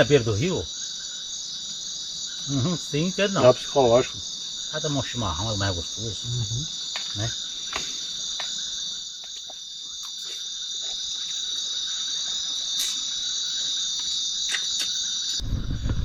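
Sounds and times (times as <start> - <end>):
crickets trilling: 0.0 - 16.0
faint clicks: 6.9 - 8.6.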